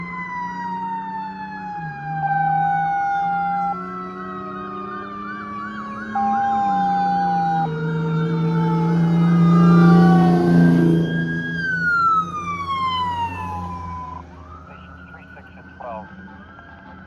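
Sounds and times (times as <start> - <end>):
fast yelping electronic siren: 0.0 - 17.0
siren winding down: 0.0 - 17.0
truck engines droning: 0.0 - 17.0.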